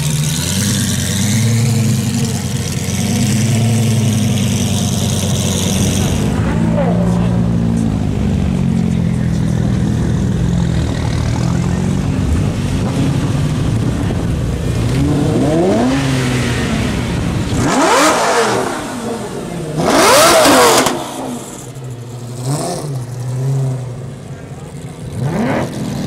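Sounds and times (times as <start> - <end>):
sports car engine idling and revving: 0.0 - 26.0.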